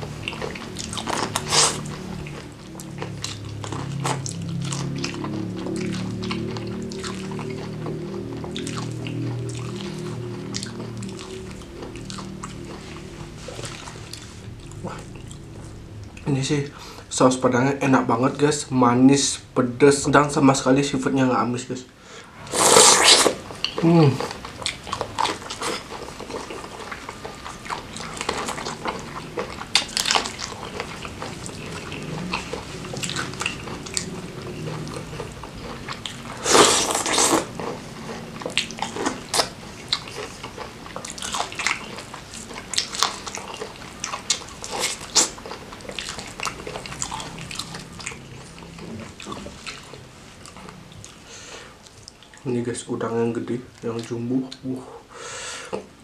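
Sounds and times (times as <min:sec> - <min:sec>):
person chewing food: 0:00.0 - 0:17.1, 0:22.4 - 0:52.5.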